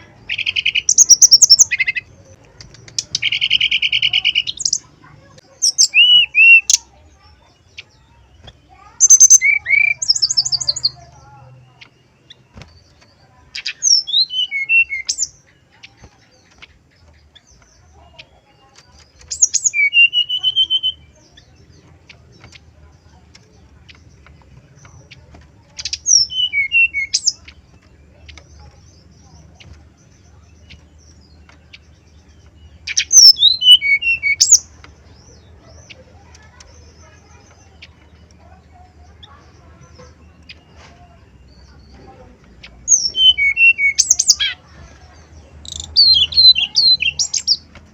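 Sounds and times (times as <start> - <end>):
bird singing whistled notes: 8.2 - 11.0, 13.6 - 15.5, 19.2 - 21.5, 25.8 - 27.7, 29.0 - 34.7, 42.8 - 44.6.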